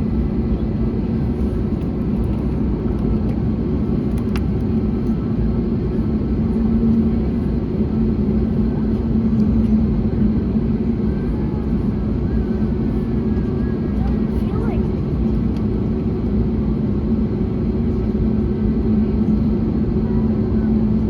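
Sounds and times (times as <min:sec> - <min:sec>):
airliner cabin rumble: 0:00.0 - 0:21.0.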